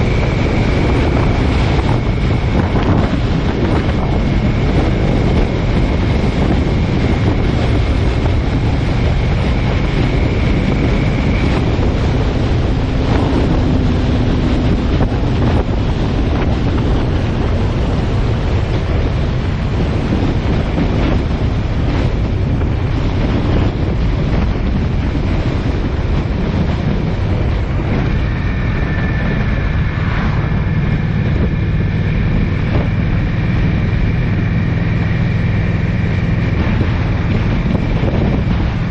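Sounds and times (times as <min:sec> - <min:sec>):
vehicle road noise: 0:00.0 - 0:38.9
wind buffeting microphone: 0:00.0 - 0:38.9.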